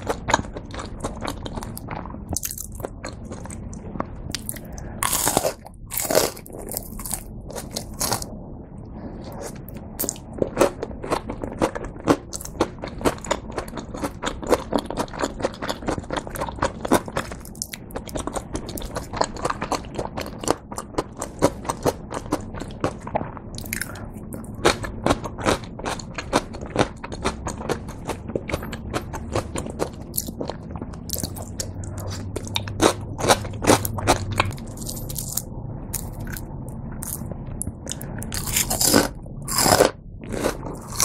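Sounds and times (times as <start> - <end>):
crunching crispy fried cutlet: 0.0 - 8.3, 37.9 - 41.0.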